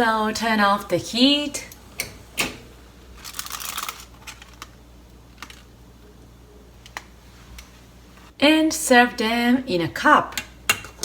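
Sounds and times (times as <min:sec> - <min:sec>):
kitchen things clicking and tapping: 0:10.3 - 0:11.0.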